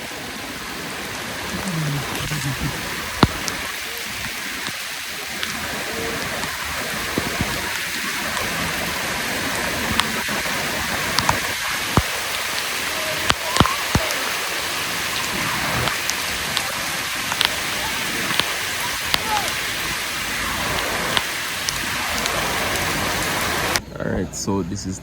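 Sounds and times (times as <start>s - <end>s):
steady rain: 0.0s - 23.8s
sharp drip taps: 17.3s - 17.6s, 18.2s - 19.6s.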